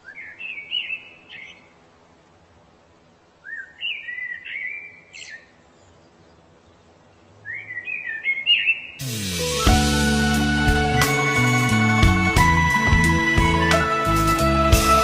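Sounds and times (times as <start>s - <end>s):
music: 9.0s - 15.0s.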